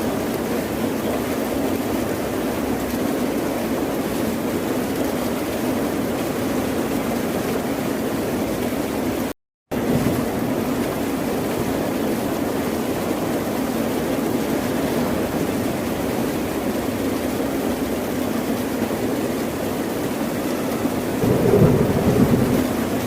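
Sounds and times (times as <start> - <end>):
ocean surf rushing: 20.9 - 23.0.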